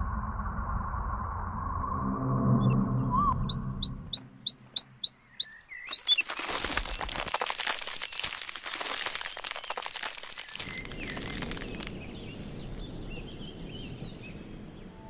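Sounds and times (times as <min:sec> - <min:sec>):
small bird chirping: 0:03.0 - 0:07.3, 0:10.4 - 0:15.0
dense crackling rustling noise: 0:05.9 - 0:12.8.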